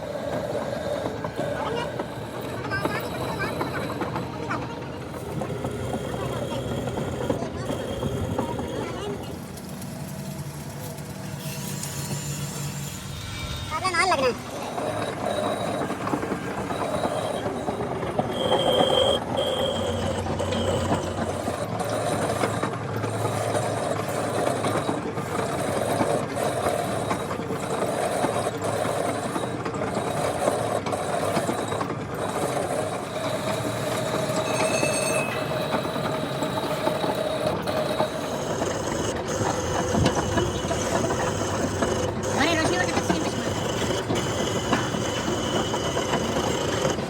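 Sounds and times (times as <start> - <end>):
mechanical workshop noise: 0.0 - 47.0
high squeals: 11.3 - 47.0.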